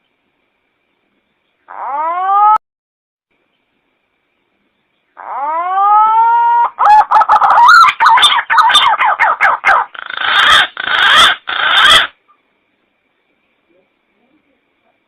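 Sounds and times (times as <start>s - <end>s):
pigeon call with warbling notes: 1.7s - 2.6s, 5.2s - 12.2s.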